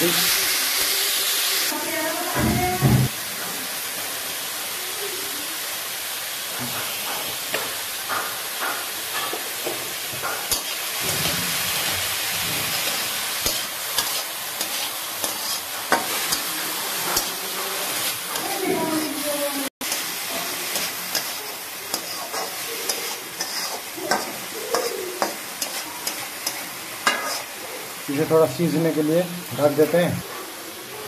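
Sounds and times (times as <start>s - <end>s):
vegetables sizzling in oil: 0.0s - 31.0s
metal spatula scraping a pan: 9.1s - 19.2s, 19.9s - 27.6s.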